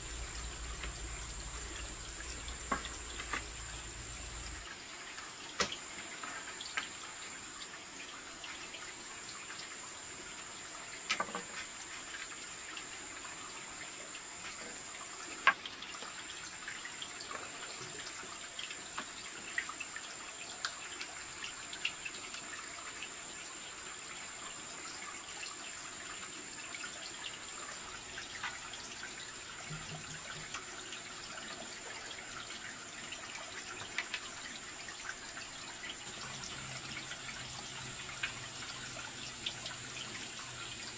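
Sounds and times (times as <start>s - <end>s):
high-pitched whine: 0.0s - 4.6s
water trickling and dripping: 0.0s - 40.9s
small ticks: 20.6s - 22.5s.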